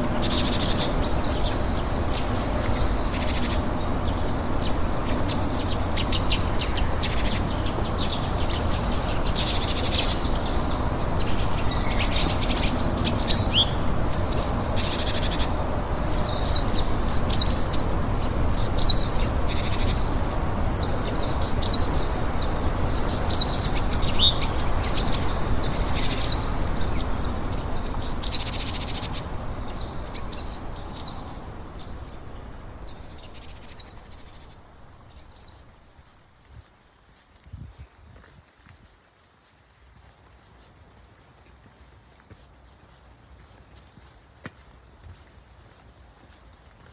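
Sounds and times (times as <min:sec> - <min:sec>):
rain hissing: 0:00.0 - 0:37.5
songbirds singing and chirping: 0:00.0 - 0:39.2.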